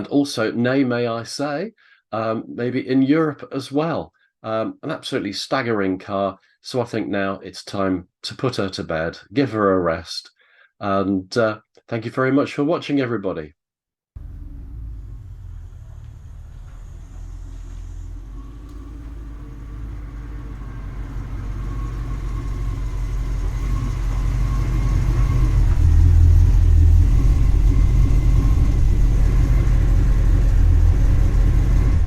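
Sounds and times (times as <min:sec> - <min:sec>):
car engine rumbling: 0:14.2 - 0:32.0.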